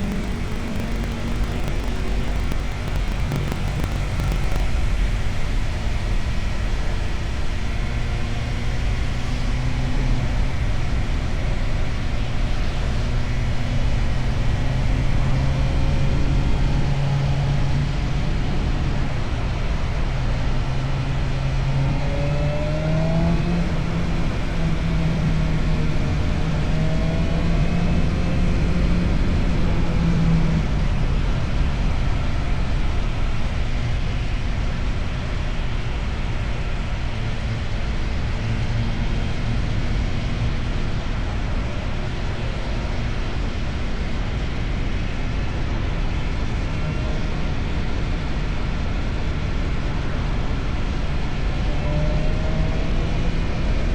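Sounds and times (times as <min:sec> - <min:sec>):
motorcycle engine rumble: 0:00.0 - 0:06.0.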